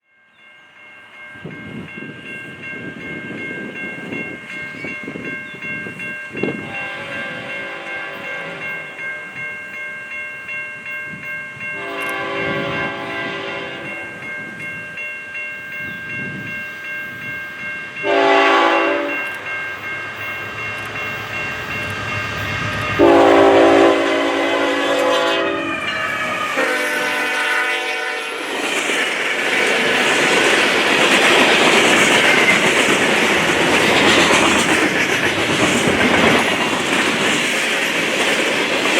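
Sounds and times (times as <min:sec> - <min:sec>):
locomotive horn blasts: 0:06.6 - 0:09.0, 0:11.8 - 0:14.1, 0:18.0 - 0:19.5, 0:22.9 - 0:28.4
train wheels roaring on rail: 0:11.1 - 0:15.0, 0:15.6 - 0:38.9.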